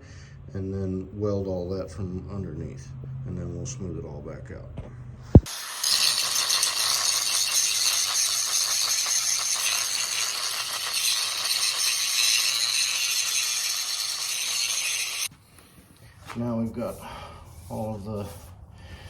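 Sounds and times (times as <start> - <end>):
angle grinder grinding steel: 5.4 - 15.3.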